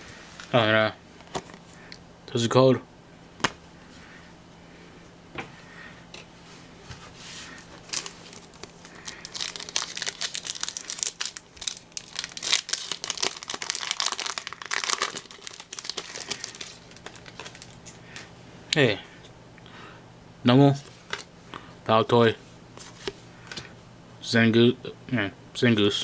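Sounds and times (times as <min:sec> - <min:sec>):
foil wrapper crinkling and tearing: 0:07.8 - 0:18.3.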